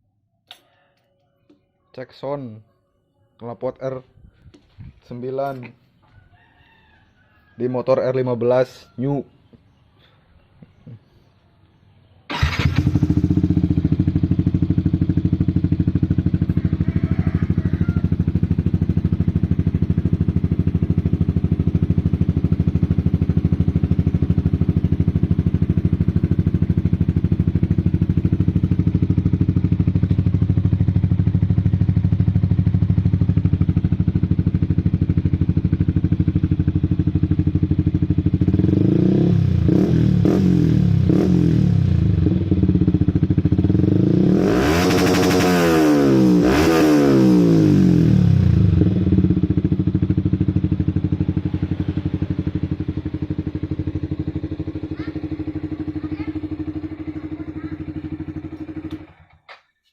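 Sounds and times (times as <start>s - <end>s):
motorcycle engine idling and revving: 12.3s - 59.9s.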